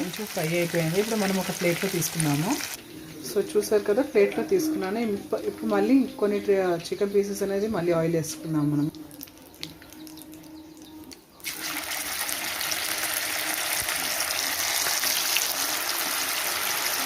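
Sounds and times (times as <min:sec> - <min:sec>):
chicken deep-frying in oil: 0:00.0 - 0:02.8, 0:11.4 - 0:17.0.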